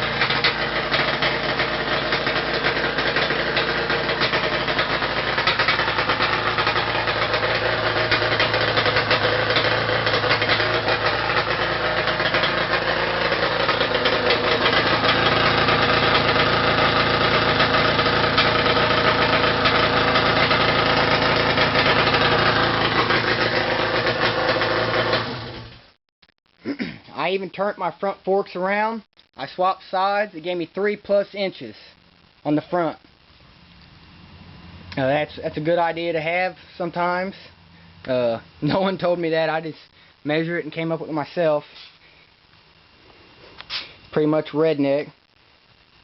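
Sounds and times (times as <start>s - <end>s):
two-stroke engine running: 0.0s - 25.9s.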